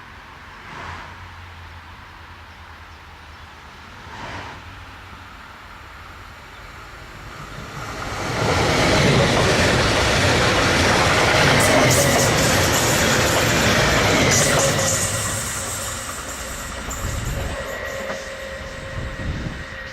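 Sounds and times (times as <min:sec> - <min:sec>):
train wheels rolling on rail: 0:04.1 - 0:19.9.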